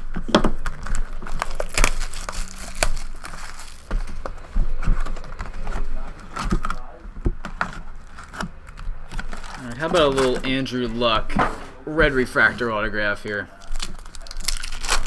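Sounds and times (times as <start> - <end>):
card pack wrappers crinkling and tearing: 0.0 - 4.4, 7.5 - 11.2, 13.5 - 15.0.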